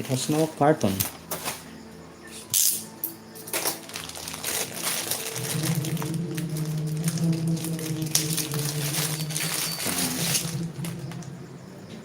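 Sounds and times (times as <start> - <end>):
plastic packaging crinkling: 3.4 - 11.3
steady low hum: 4.6 - 12.0.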